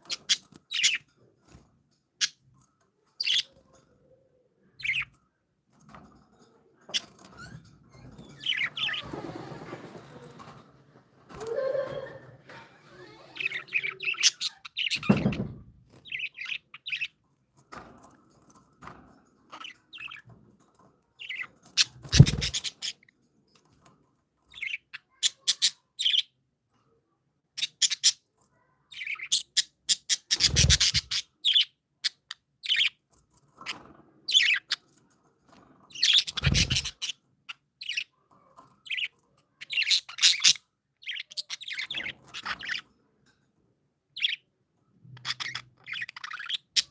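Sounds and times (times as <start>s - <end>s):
budgerigars chirping: 29.0s - 33.0s, 36.0s - 37.2s, 45.2s - 46.9s.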